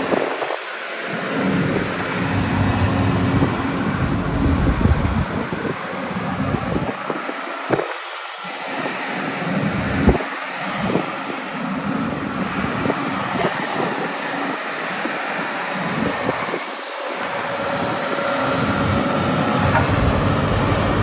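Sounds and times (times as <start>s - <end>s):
wind buffeting microphone: 0.0s - 8.0s, 10.8s - 15.2s, 15.8s - 21.0s.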